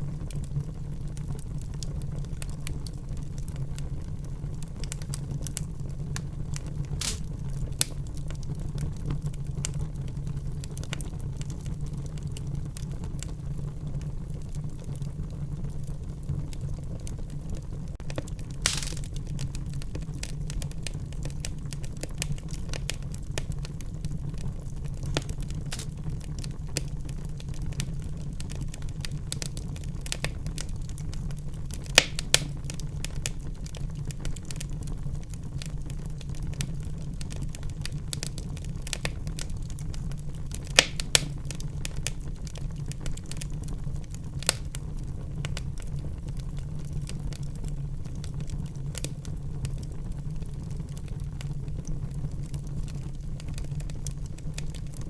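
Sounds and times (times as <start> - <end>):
fire crackling: 0.0 - 55.0
low rumble of flames: 0.0 - 55.0
sharp pops of fire: 4.8 - 8.4, 18.0 - 23.9, 24.9 - 34.9, 35.6 - 43.7, 44.4 - 45.9.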